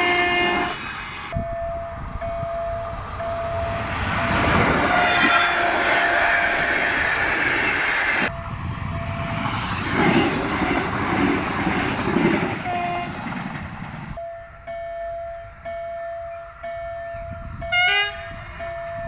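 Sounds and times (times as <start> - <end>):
crossing signal warning tone: 0.0 - 7.4, 8.1 - 11.0, 14.2 - 19.0
electric train rumbling in surges: 0.0 - 19.0
train rumbling over rails: 0.0 - 19.0.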